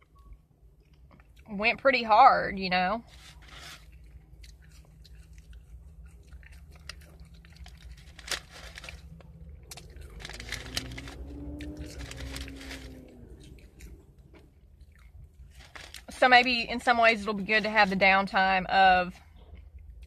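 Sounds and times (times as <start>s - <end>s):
chewing crunchy fries: 0.0s - 1.6s, 3.0s - 16.4s, 19.2s - 20.0s
faint rising and falling hum: 0.0s - 20.0s.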